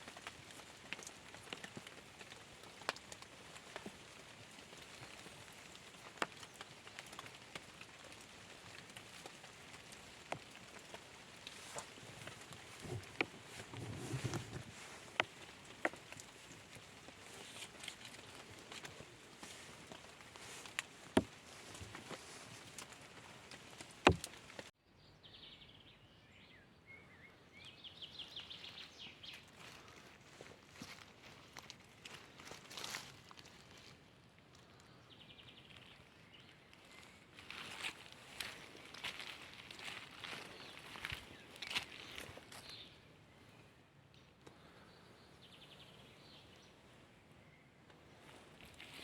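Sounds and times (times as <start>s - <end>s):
light rain falling: 0.0s - 24.7s
sharp knocks: 24.1s - 24.3s.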